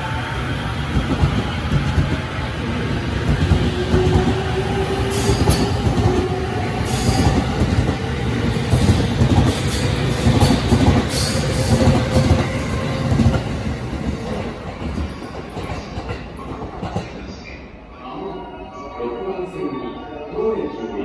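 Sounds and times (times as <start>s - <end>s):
train running rumble: 0.0s - 17.2s.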